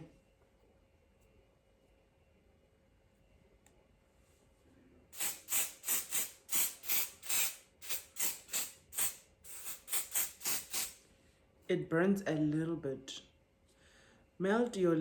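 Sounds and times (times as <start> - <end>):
spray can hissing bursts: 5.2 - 11.0.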